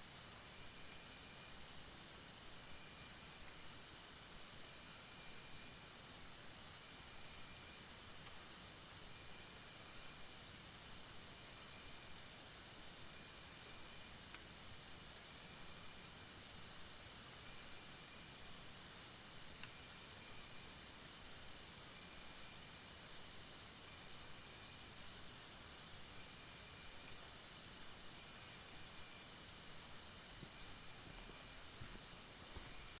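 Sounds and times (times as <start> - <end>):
low insect chirp: 0.0 - 33.0
crickets trilling: 9.2 - 33.0.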